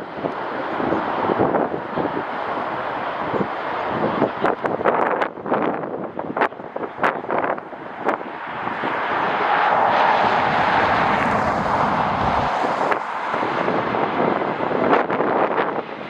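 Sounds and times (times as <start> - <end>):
jet airliner passing: 0.0 - 16.0.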